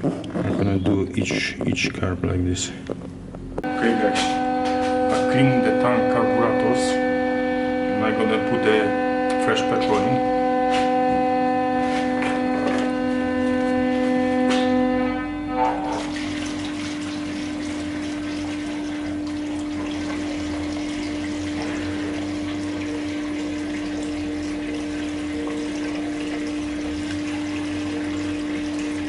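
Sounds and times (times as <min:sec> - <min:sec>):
steady hum: 0:00.0 - 0:29.0
liquid pouring into tank: 0:08.0 - 0:29.0.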